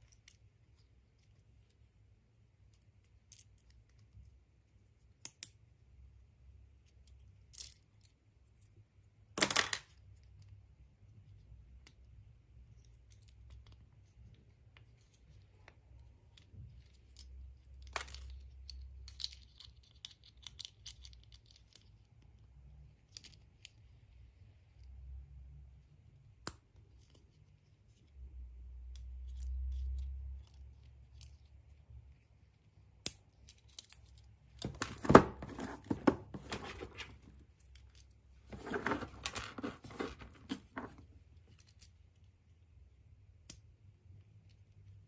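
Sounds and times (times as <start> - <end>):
packaging rustling: 34.6 - 37.3, 38.5 - 41.0.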